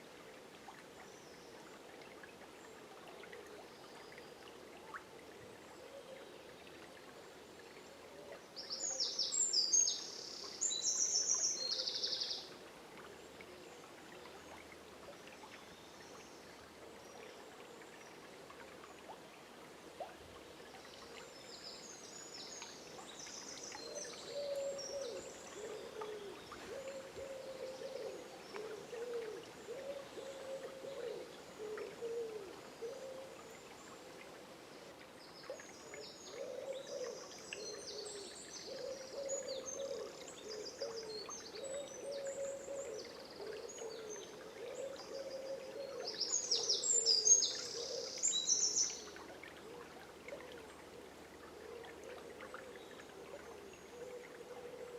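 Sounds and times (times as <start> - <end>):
faint rushing water: 0.0 - 54.9
songbirds singing: 21.6 - 32.2
low wavering bird calls: 23.8 - 33.4, 35.8 - 49.2.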